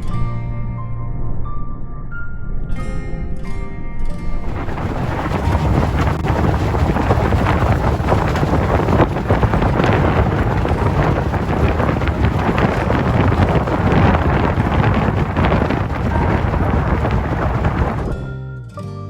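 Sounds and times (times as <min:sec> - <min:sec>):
wind buffeting microphone: 0:04.4 - 0:18.3
motorboat low rumble: 0:04.4 - 0:18.4.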